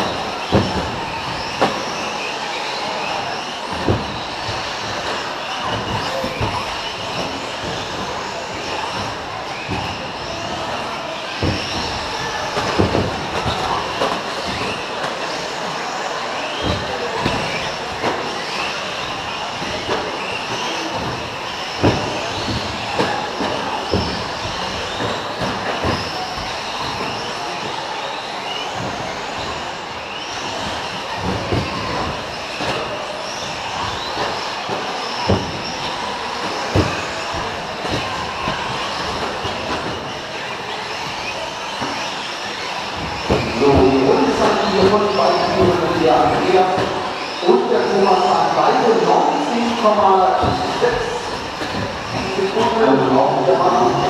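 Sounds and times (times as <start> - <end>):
electric motors whining: 0.0 - 54.0
trucks knocking on track: 0.0 - 54.0
sharp knocks from toy trucks: 3.7 - 15.4.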